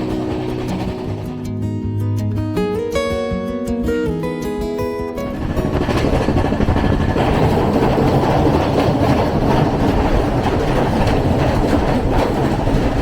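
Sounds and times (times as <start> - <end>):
train rumbling: 0.0 - 1.8, 5.2 - 13.0
wheels clacking over rail joints: 0.0 - 1.8, 5.2 - 13.0.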